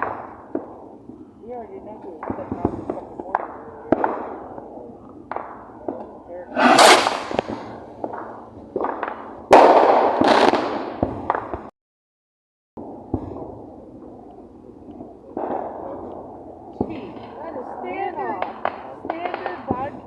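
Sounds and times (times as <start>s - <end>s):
fireworks bursting and crackling: 0.0s - 11.7s, 15.0s - 20.0s
fireworks hiss: 6.5s - 7.9s.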